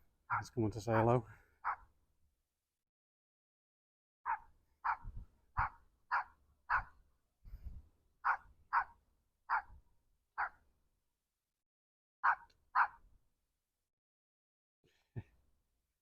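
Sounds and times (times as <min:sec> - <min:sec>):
small dog yapping: 0:04.3 - 0:06.9, 0:08.2 - 0:08.9, 0:09.5 - 0:09.7, 0:12.2 - 0:13.0.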